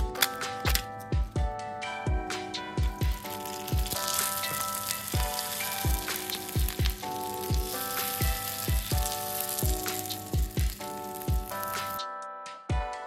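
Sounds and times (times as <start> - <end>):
background music with drum beat: 0.0 - 13.0
food sizzling in oil: 3.0 - 12.0.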